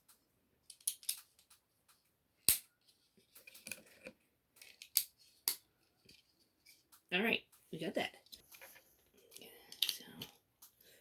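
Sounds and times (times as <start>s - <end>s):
plastic bricks clicking: 0.7s - 1.6s.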